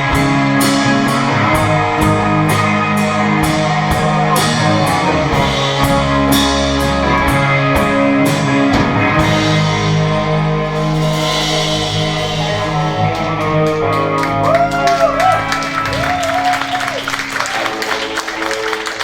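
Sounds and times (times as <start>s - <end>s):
drum kit and cymbals: 0.0s - 16.8s
bass guitar: 0.0s - 19.0s
guitars: 0.0s - 19.0s.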